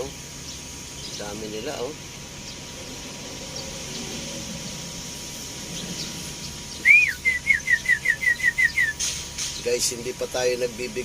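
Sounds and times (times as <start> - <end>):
steady hiss: 0.0 - 7.3, 8.6 - 11.0
sparrows chirping: 0.0 - 11.0
loud whistle: 6.8 - 9.0.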